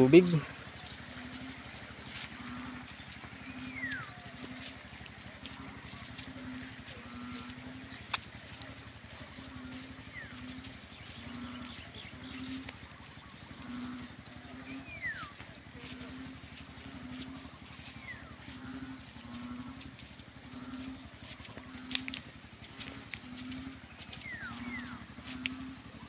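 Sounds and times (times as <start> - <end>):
birds chirping: 0.0 - 26.0
low regular pulse: 0.0 - 26.0.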